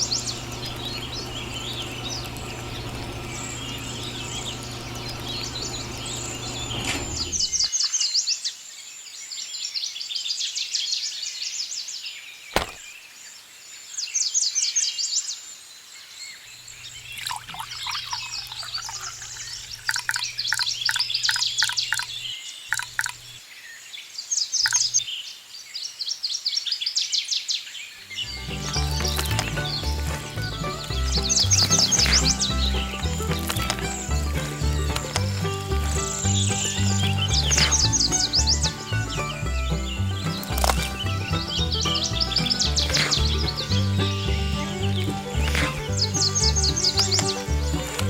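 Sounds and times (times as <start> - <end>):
small motor humming: 0.0 - 7.7, 16.6 - 23.4, 28.4 - 48.0
small birds chirping: 0.0 - 48.0
sharp click: 12.5 - 12.8.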